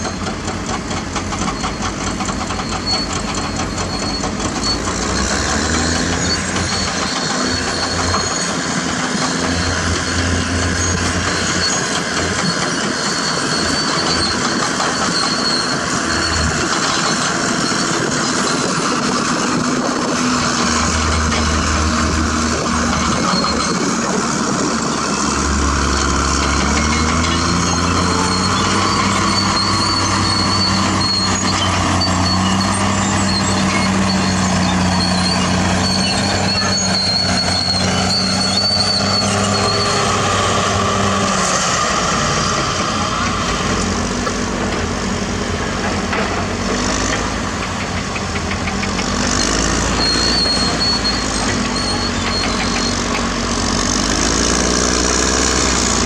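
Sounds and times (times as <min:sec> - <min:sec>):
bulldozer diesel engine under load: 0:00.0 - 0:56.0
high thin squeal: 0:25.0 - 0:42.0, 0:49.4 - 0:53.1.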